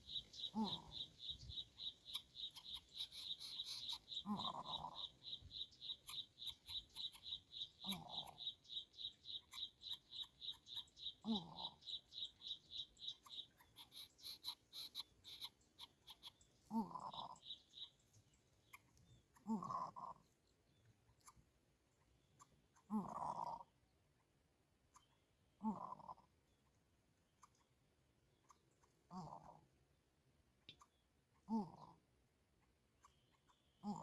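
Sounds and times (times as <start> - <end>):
rapid high chirps: 0.0 - 16.4.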